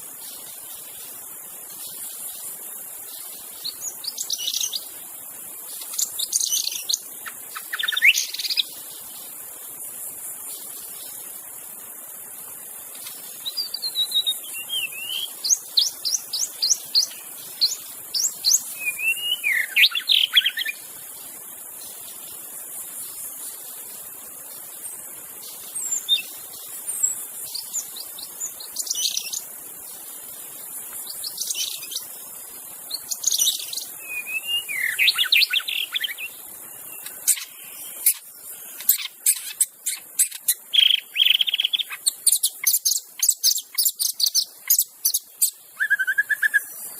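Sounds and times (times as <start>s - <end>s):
steady high hiss: 0.0s - 46.9s
bird singing whistles: 13.4s - 20.8s, 33.0s - 38.2s, 45.1s - 46.8s.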